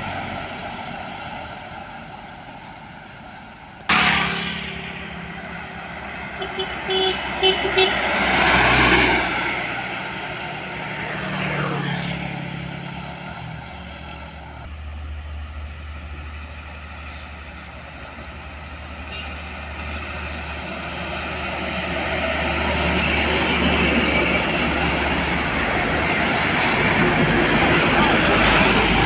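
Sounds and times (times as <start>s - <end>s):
vehicle approaching: 0.0s - 29.0s
vehicle passing by: 3.9s - 17.2s.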